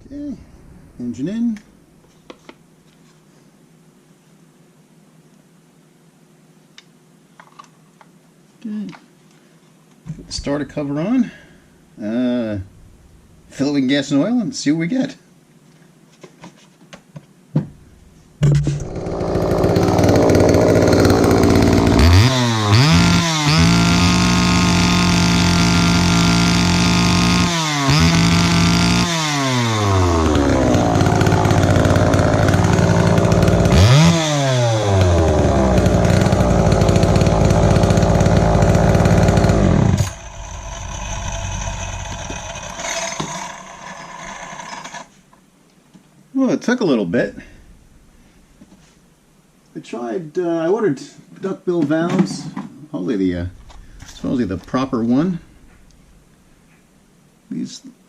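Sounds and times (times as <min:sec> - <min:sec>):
chainsaw engine revving: 0:18.4 - 0:45.1, 0:53.5 - 0:56.0.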